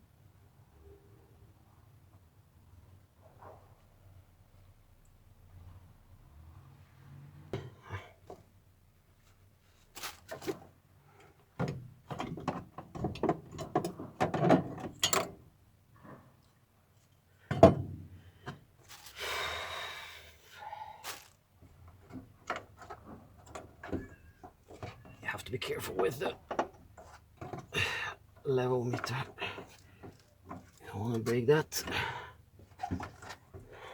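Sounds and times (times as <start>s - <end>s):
scraping or rustling: 9.7s - 10.7s, 18.8s - 19.2s, 21.0s - 21.4s
knocks and clatter of tools: 10.0s - 16.2s, 17.4s - 19.0s, 21.6s - 33.8s.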